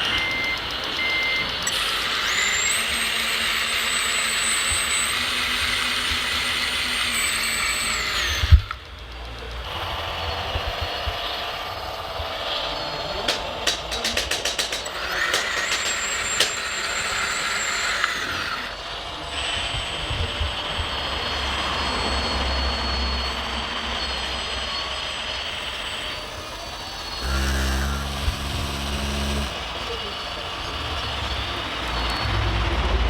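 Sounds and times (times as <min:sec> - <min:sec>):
hydraulic pumps whining: 0:00.0 - 0:33.0
quick clicks: 0:13.3 - 0:16.6
low engine-like drone: 0:18.9 - 0:33.0.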